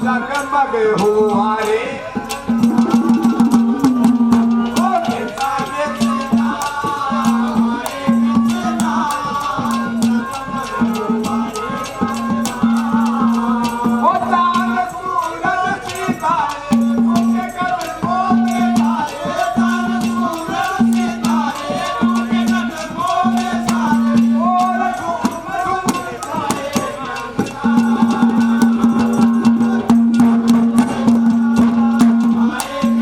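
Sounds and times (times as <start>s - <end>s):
low held note: 2.5s - 4.8s
pitch-bending melody: 2.5s - 5.2s.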